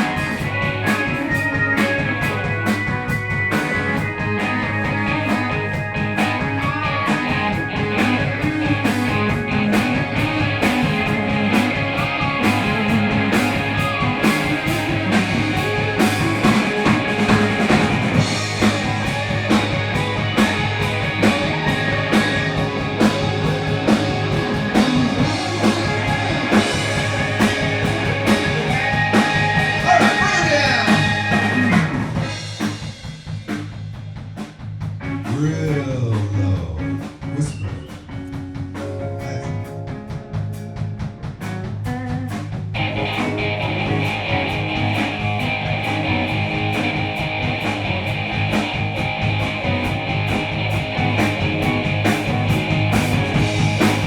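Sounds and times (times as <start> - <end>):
drum-kit beat: 0.0 - 54.0
live blues-rock band: 0.0 - 54.0.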